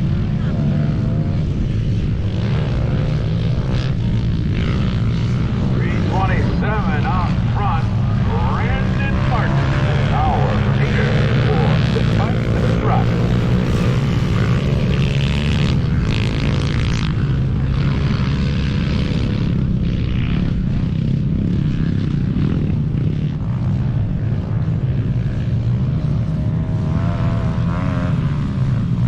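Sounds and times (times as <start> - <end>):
pit bike engines buzzing: 0.0 - 29.0.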